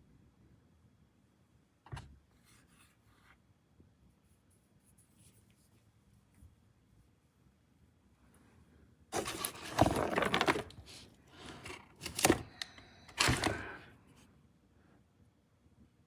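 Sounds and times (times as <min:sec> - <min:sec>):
rustling handling noise: 0:09.2 - 0:13.9.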